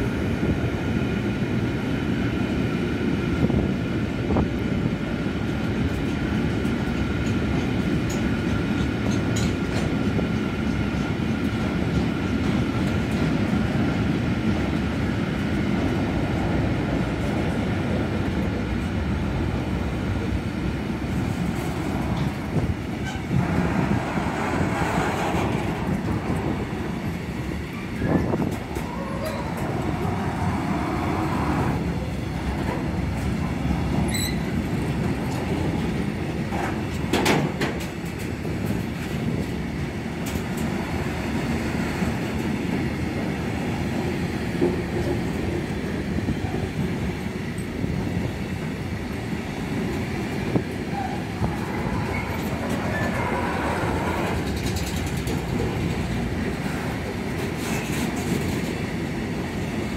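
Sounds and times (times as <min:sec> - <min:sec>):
wagon wheels rumbling on rails: 0:15.8 - 0:45.8, 0:49.7 - 0:59.9.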